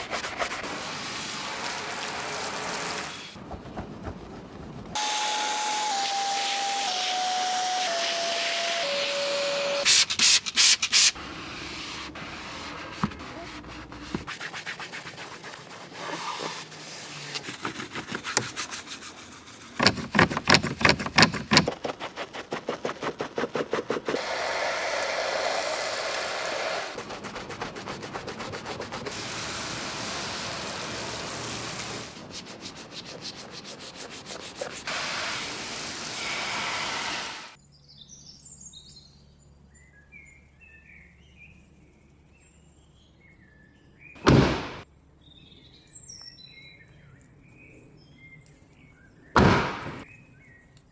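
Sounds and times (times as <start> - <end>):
water and foam spraying hiss: 0.0 - 3.4, 6.0 - 7.2, 24.0 - 27.6, 28.7 - 32.7, 33.8 - 37.6
scrubbing strokes on car bodywork: 0.0 - 5.0, 9.9 - 37.5.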